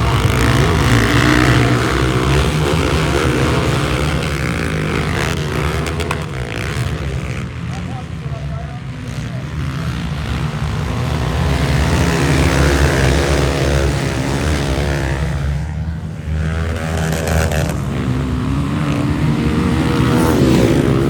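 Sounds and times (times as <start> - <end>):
motorcycle engine revving hard: 0.0 - 21.0.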